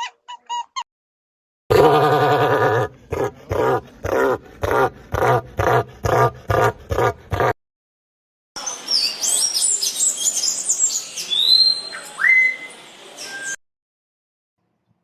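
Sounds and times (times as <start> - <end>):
songbirds chirping and whistling: 8.6 - 13.6.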